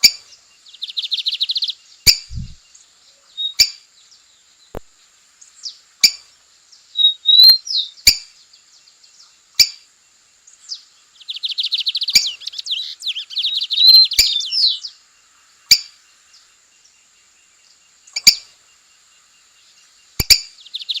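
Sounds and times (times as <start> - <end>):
bird singing and trilling: 0.0 - 9.8, 10.5 - 15.1, 15.7 - 21.0
sharp clicks: 20.2 - 20.4.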